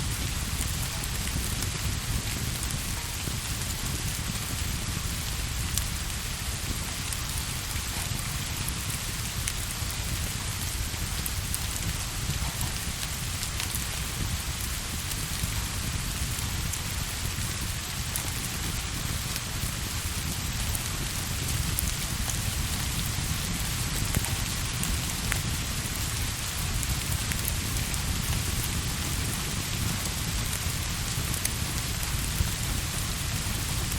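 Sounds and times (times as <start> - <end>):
steady rain: 0.0 - 33.9.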